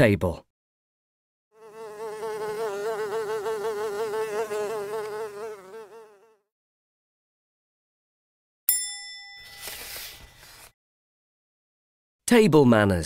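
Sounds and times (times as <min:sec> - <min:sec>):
fly buzzing: 0:01.6 - 0:06.5.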